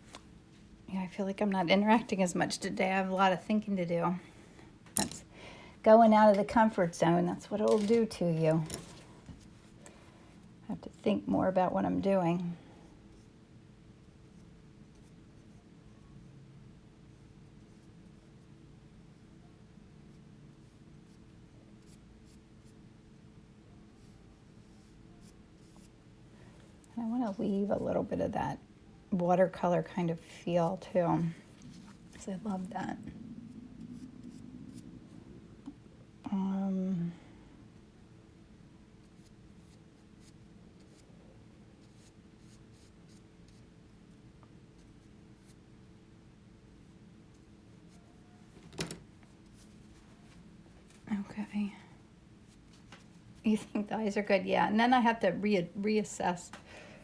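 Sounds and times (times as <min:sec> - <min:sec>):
low room hum: 0:00.0 - 0:57.0
paintbrush strokes on paper: 0:30.4 - 0:35.7, 0:41.7 - 0:45.6.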